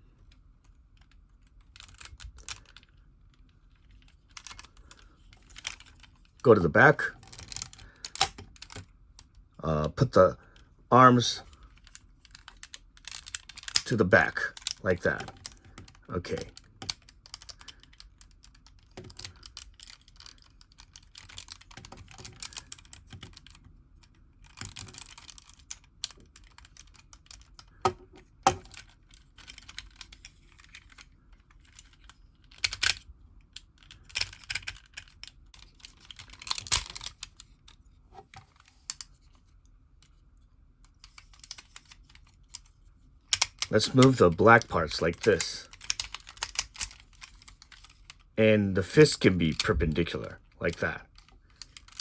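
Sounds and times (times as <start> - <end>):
plastic toy clicks and rattles: 4.0 - 6.4, 7.2 - 8.9, 11.4 - 39.3, 40.9 - 42.7, 43.3 - 48.3, 49.0 - 52.0.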